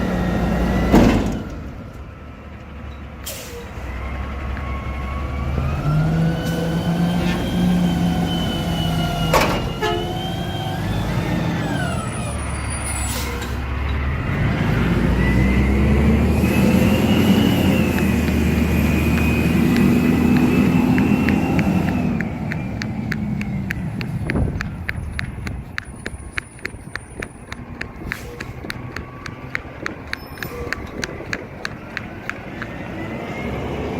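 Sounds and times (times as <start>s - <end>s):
garbage truck engine revving: 3.9s - 33.9s
quick run of ticks: 17.5s - 32.9s.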